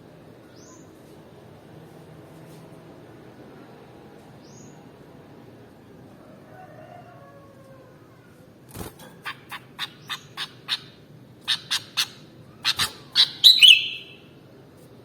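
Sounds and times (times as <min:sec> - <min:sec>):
bulbul chirping: 0:11.5 - 0:14.2.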